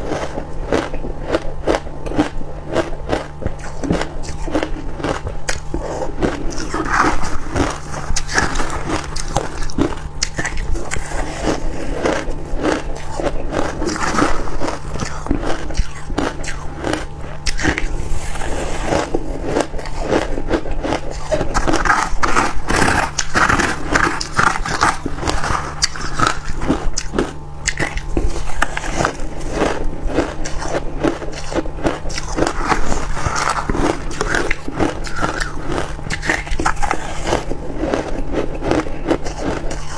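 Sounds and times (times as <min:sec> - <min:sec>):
crunching frost being chewed: 0:00.0 - 0:39.9.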